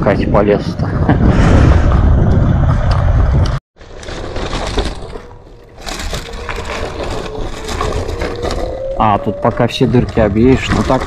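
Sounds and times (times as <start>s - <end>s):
wind noise on microphone: 0.0s - 3.6s.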